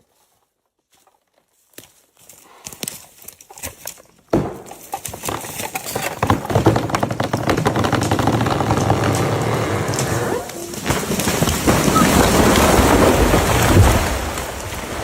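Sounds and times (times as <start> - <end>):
tree cracking: 2.6 - 15.0
tree crashing through branches: 3.4 - 15.0.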